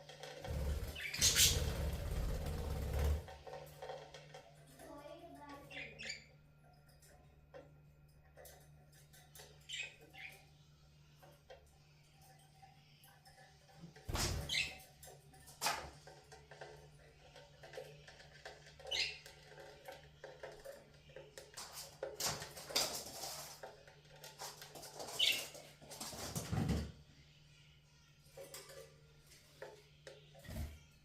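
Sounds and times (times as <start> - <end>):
birds rustling: 0.1 - 4.0
budgerigars chirping: 1.0 - 1.8.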